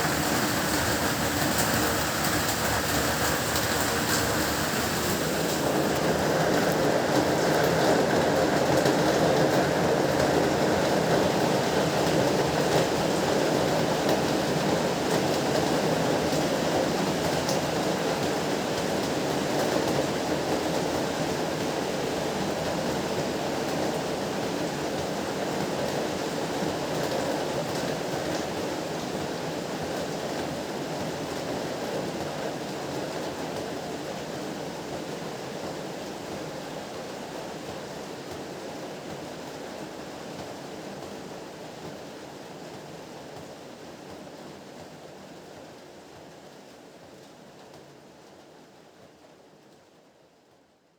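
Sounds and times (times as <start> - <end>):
heavy rain falling: 0.0 - 40.1.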